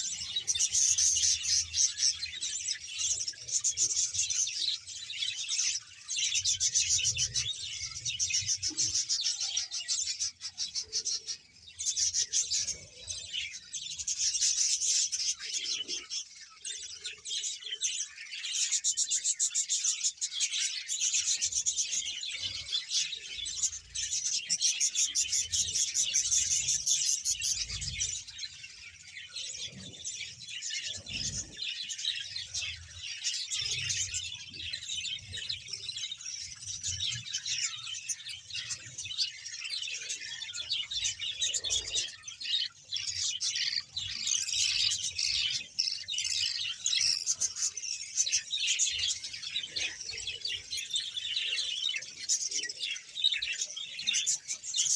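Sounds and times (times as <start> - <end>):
budgerigars chattering and chirping: 0.0 - 54.9.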